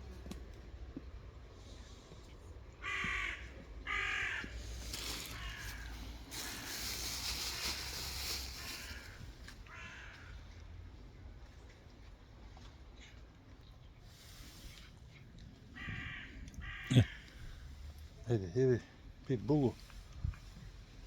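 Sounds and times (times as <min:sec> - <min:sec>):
harsh animal calls: 0:15.8 - 0:17.4.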